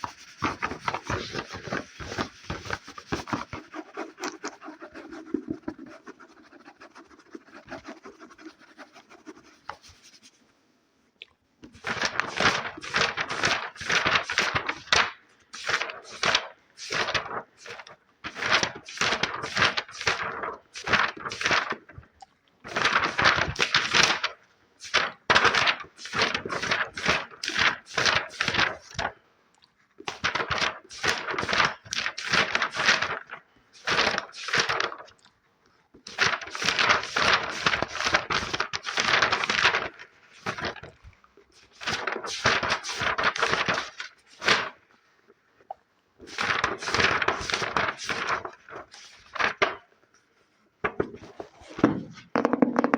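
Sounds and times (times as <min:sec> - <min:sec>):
fast scratching on object: 0:00.0 - 0:10.4.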